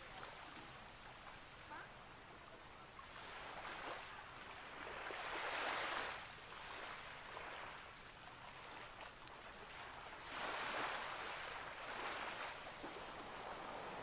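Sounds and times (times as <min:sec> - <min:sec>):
ocean waves washing in: 0:09.6 - 0:14.0.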